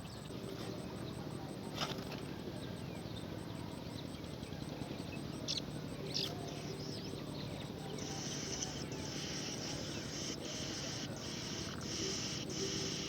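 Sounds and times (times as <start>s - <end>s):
high-pitched insect trill: 8.0s - 13.0s.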